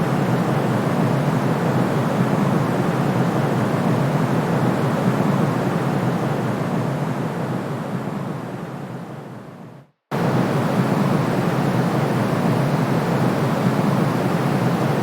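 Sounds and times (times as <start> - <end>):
white noise hiss: 0.0 - 15.0.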